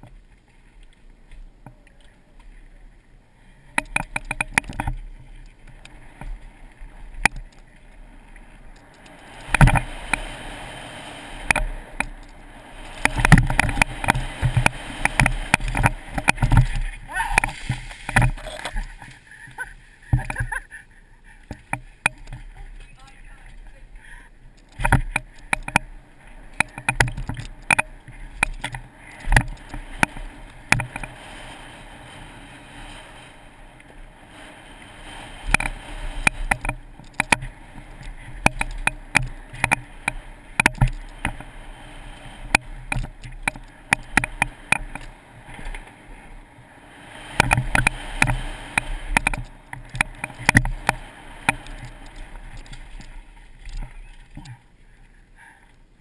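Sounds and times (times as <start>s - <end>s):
creek water flowing: 0.0s - 56.0s
sharp knocks and clatters: 3.8s - 5.0s, 26.5s - 31.1s, 47.4s - 54.5s.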